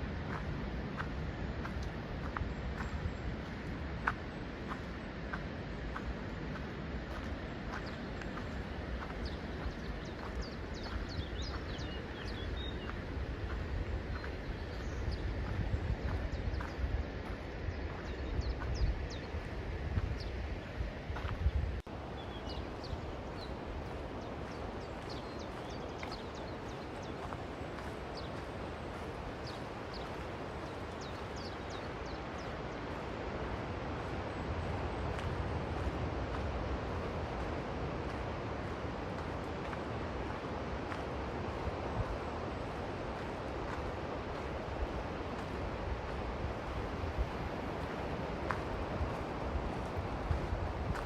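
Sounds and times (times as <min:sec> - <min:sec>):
wind: 0:00.0 - 0:51.0
small birds chirping: 0:00.2 - 0:36.0
footsteps walking: 0:00.2 - 0:51.0
bird chirping: 0:07.8 - 0:13.1
ocean surf: 0:22.0 - 0:51.0.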